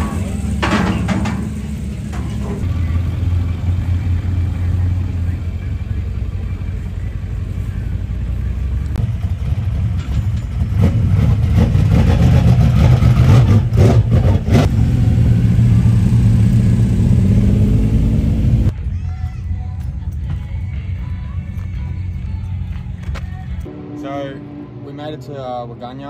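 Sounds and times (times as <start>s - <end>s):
stock car engine revving: 8.1s - 18.7s.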